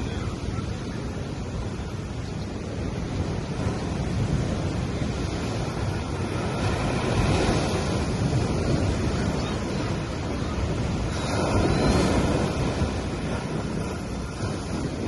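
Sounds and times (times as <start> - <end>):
waves washing onto sand: 0.0 - 15.0.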